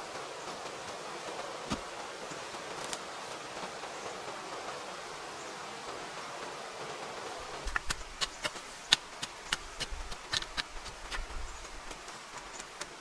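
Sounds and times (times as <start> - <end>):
faint steady hiss: 0.0 - 13.0
sharp clicks and snaps: 7.7 - 13.0.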